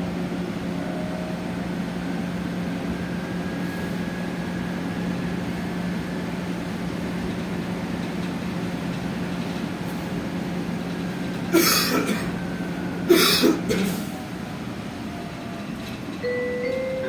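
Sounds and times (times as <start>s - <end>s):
bus cabin hum: 0.0s - 17.0s
person coughing: 11.5s - 12.4s, 13.1s - 14.0s
announcement chime: 16.2s - 17.0s.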